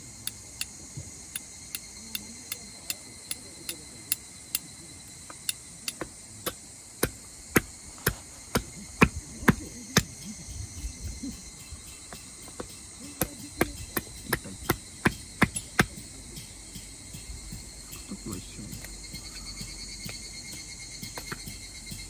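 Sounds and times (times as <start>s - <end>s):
night insects chorus: 0.0s - 22.0s
sharp striking knocks: 5.9s - 22.0s.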